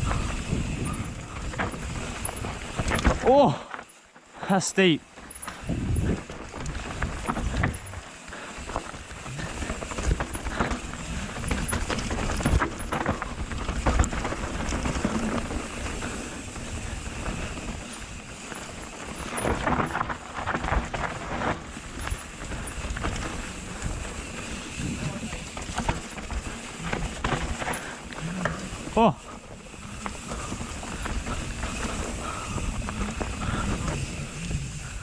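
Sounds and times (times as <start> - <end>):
wind on microphone: 0.0 - 3.2, 5.6 - 8.0
bike clattering over bumps: 0.0 - 4.4, 5.1 - 35.0
bike tyres on dirt: 0.0 - 35.0.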